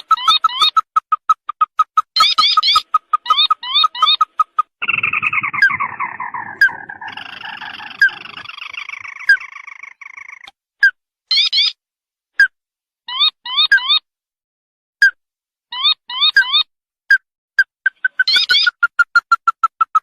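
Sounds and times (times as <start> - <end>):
crake calls: 0.0 - 10.5, 17.9 - 20.0.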